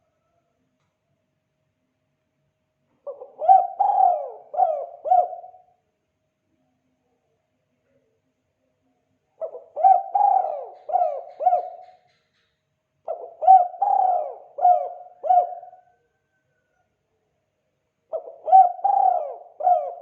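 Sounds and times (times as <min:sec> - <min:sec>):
dove cooing: 0:03.0 - 0:05.7, 0:09.4 - 0:12.2, 0:13.1 - 0:16.4, 0:18.1 - 0:20.0.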